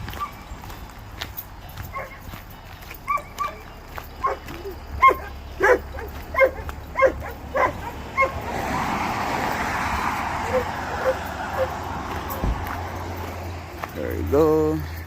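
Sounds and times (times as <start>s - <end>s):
dog barking: 1.9s - 2.3s, 3.1s - 8.6s, 10.4s - 12.4s.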